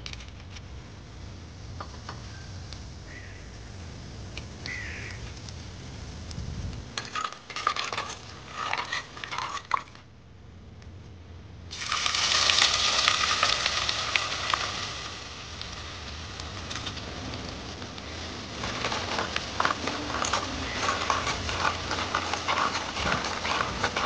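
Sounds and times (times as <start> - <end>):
metal spatula scraping a pan: 7.0 - 10.0, 18.6 - 24.0
food sizzling in hot oil: 11.7 - 24.0.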